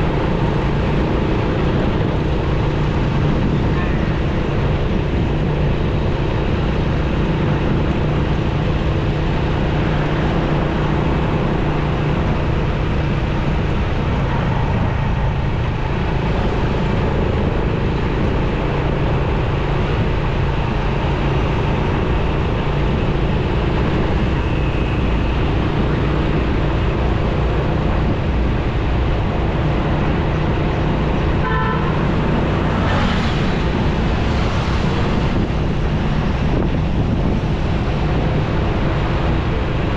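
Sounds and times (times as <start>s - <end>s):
motorcycle engine hum: 0.0s - 39.9s
wind and road noise: 0.0s - 39.9s
vehicle horn toot: 31.4s - 32.1s.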